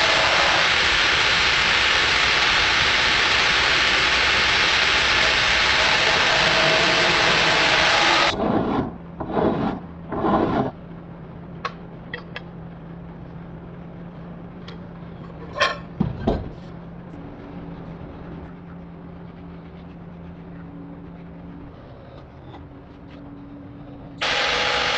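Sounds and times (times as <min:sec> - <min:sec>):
power tool running: 0:00.0 - 0:08.4, 0:24.2 - 0:24.9
low steady hum: 0:00.0 - 0:24.2
rasping file strokes: 0:06.2 - 0:10.8.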